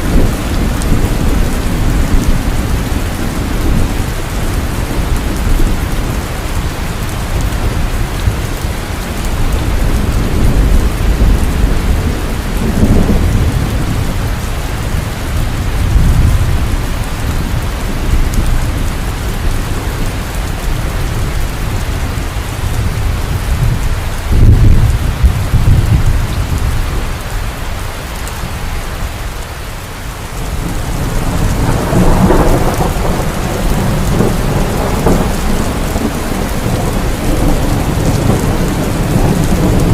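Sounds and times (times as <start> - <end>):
heavy rain falling: 0.0 - 39.9
thunder rolling: 7.2 - 27.1, 30.4 - 39.9.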